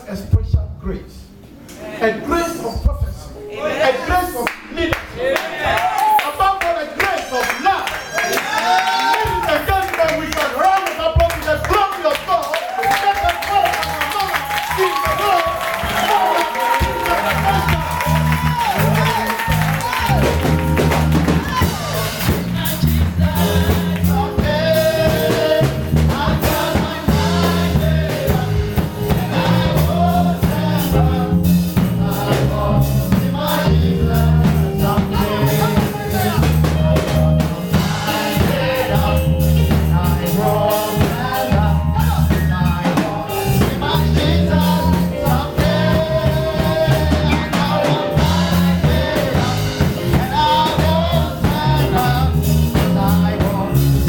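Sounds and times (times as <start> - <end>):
singers: 1.6 - 54.0
drum kit: 7.5 - 54.0
bass guitar: 13.4 - 54.0.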